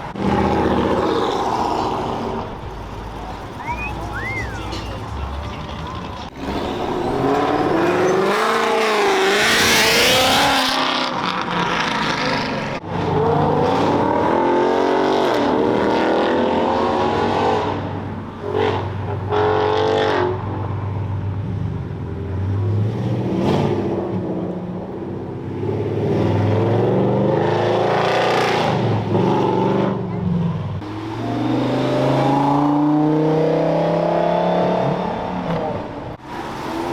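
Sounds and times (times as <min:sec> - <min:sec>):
cars accelerating past: 0:00.0 - 0:20.5, 0:22.2 - 0:36.9.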